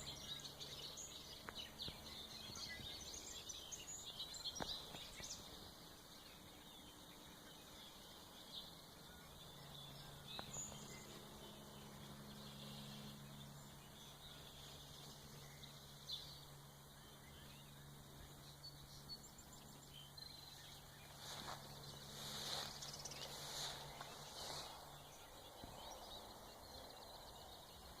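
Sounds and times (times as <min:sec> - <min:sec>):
distant birdsong: 0:00.0 - 0:28.0
low steady hum: 0:00.0 - 0:28.0.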